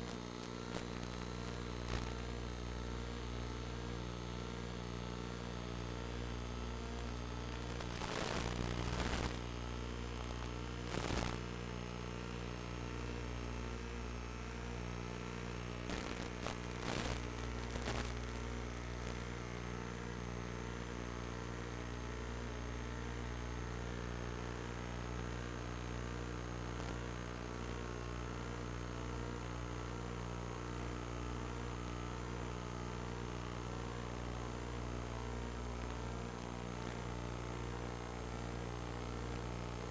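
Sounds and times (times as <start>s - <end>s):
crackling bursts: 0.0s - 14.1s, 15.0s - 20.6s, 26.7s - 27.0s
electrical hum: 0.0s - 39.9s.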